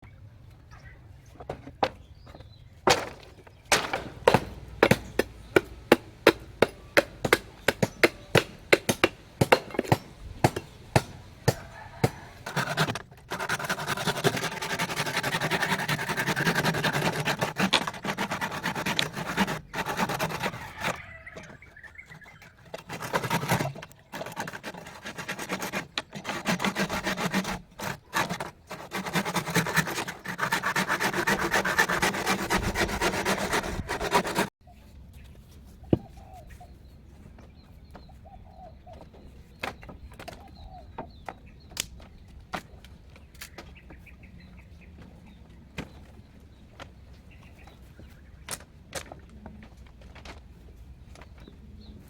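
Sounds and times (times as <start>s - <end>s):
sharp knocks of hand tool: 3.7s - 12.2s
rasping scrapes: 6.6s - 34.5s.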